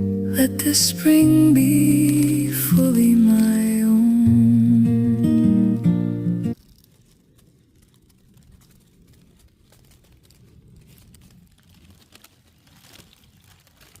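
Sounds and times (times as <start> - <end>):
faint low rumble: 0.0 - 14.0
light rustles and crinkles: 6.5 - 14.0.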